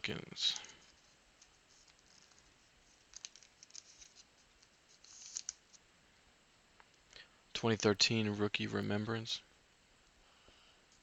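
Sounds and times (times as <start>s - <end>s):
trading cards clicking: 3.1s - 5.8s.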